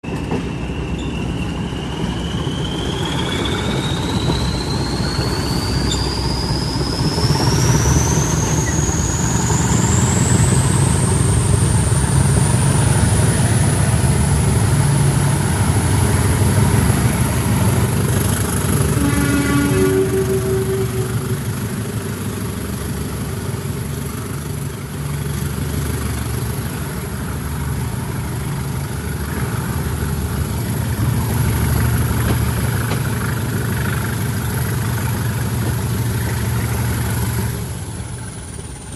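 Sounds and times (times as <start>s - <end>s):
diesel locomotive engine rumble: 0.0s - 38.9s
turbocharger whistle: 0.4s - 12.0s, 18.6s - 21.6s.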